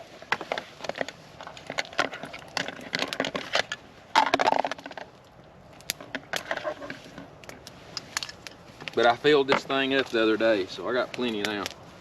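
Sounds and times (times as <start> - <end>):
campfire crackling: 0.0 - 12.0
gear clattering and rustling: 0.3 - 5.1.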